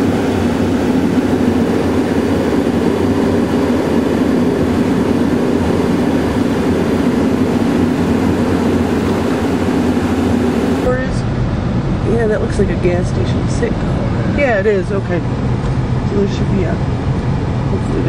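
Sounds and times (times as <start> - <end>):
car cabin road and engine drone: 0.0 - 18.0.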